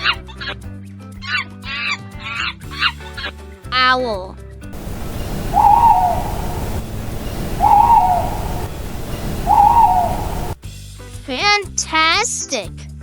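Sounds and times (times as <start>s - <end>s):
low background noise: 4.8s - 10.6s
owl hooting: 4.8s - 10.6s.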